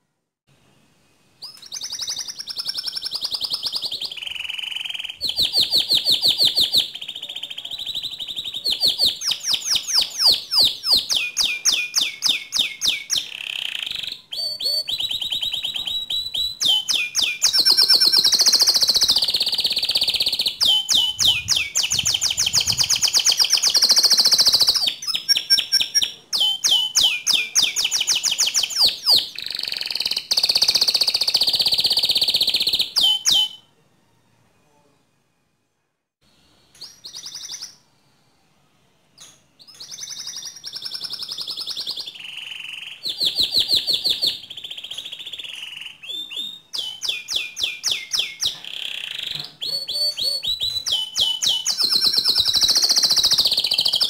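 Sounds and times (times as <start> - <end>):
canary singing trills: 1.4 - 33.7, 36.7 - 37.9, 39.2 - 54.0.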